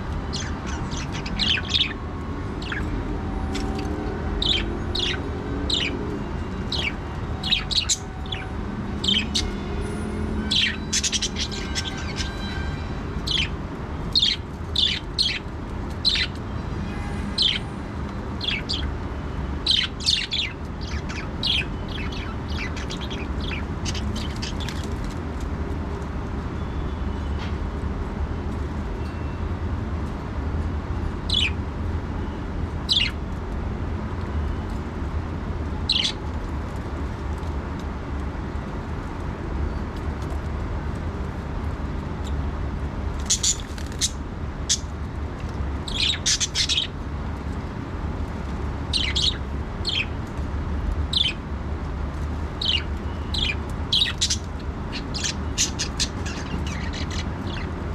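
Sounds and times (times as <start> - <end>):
budgerigars chirping: 0.3 - 2.0, 2.6 - 2.9, 3.5 - 6.0, 6.7 - 9.6, 10.5 - 12.6, 13.3 - 13.5, 14.2 - 16.4, 18.4 - 18.9, 19.7 - 25.0, 31.3 - 31.6, 32.9 - 33.2, 35.9 - 36.2, 43.2 - 44.9, 45.8 - 46.9, 48.9 - 50.1, 51.1 - 51.4, 52.6 - 57.8.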